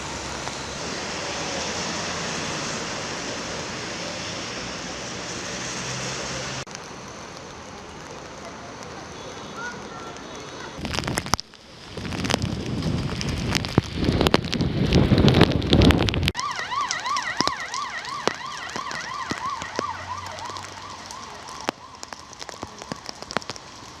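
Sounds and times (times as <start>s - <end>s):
emergency vehicle siren: 0.0s - 6.7s, 16.3s - 24.0s.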